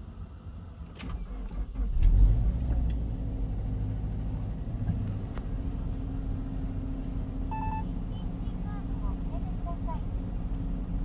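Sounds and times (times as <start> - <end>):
car engine starting and idling: 0.0 - 11.0.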